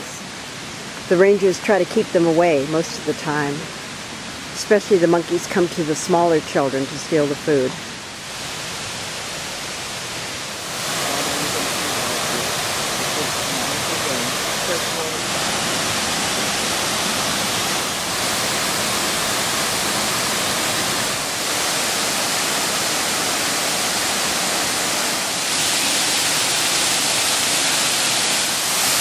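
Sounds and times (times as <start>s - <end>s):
waterfall roaring: 0.0s - 29.0s.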